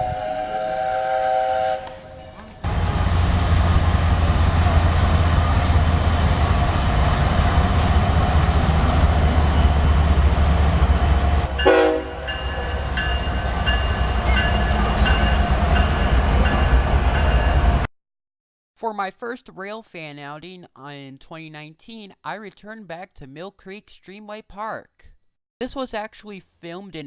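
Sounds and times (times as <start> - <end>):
train horn note: 0.0 - 4.3, 11.4 - 12.7
rail clicks: 1.8 - 17.9
locomotive engine rumble: 2.2 - 17.9.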